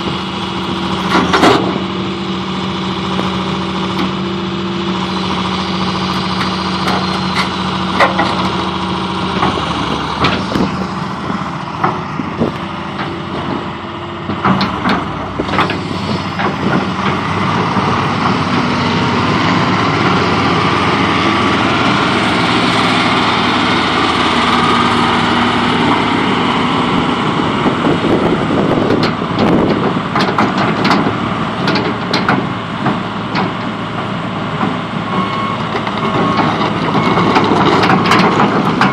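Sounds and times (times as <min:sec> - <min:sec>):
excavator diesel engine: 0:00.0 - 0:38.9
metallic clanks and knocks: 0:06.3 - 0:08.6, 0:14.3 - 0:17.2, 0:28.9 - 0:33.7, 0:35.7 - 0:38.9.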